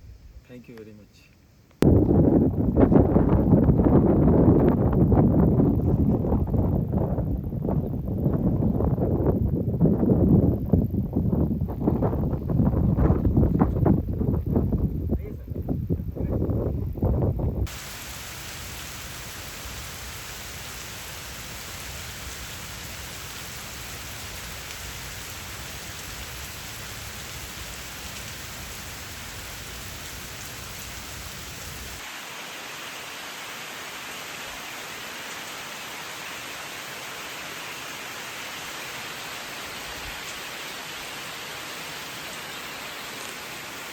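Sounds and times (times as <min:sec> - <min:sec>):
rain falling: 0:17.7 - 0:43.9.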